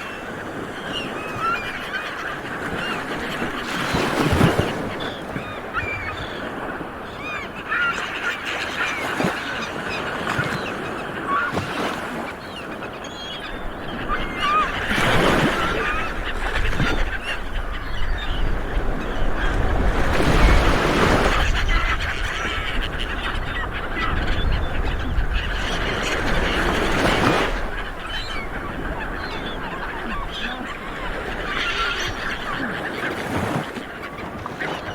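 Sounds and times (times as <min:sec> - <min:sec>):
seabirds squawking: 0:00.0 - 0:34.9.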